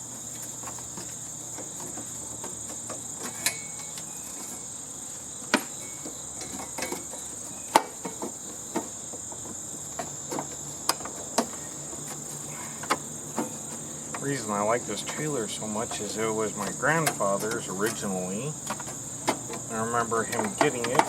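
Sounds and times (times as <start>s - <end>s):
crickets chirring: 0.0s - 21.0s
hand tools knocking on metal: 15.0s - 21.0s.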